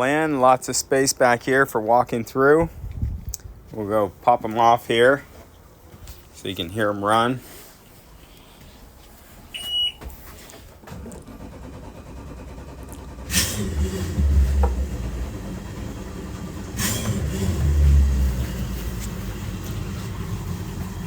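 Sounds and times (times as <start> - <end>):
short electronic beep: 9.5 - 10.0
outboard motors idling: 10.6 - 21.0
outboard motor cranking: 10.8 - 21.0.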